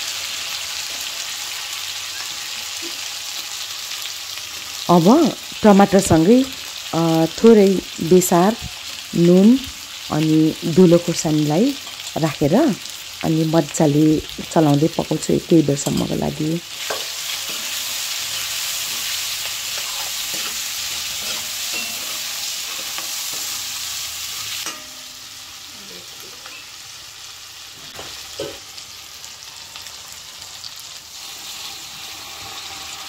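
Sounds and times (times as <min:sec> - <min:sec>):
vegetables sizzling in a wok: 0:00.0 - 0:33.0
steel ladle scraping a wok: 0:15.9 - 0:25.1.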